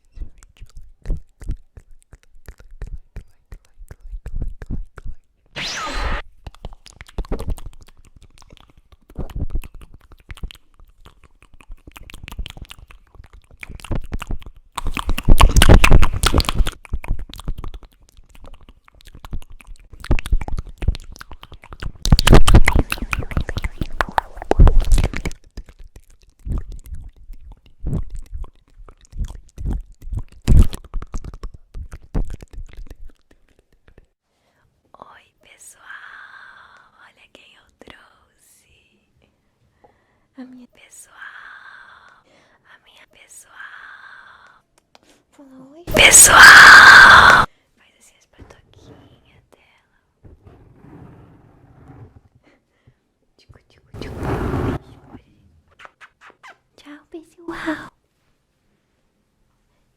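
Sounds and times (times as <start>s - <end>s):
scratching and crackling at microphone: 0.0s - 34.2s.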